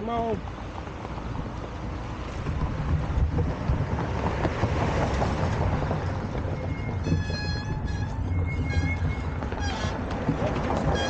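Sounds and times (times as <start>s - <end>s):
low riding rumble: 0.0s - 11.0s
wind buffeting microphone: 1.2s - 11.0s
high whistle-like tone: 6.5s - 9.8s.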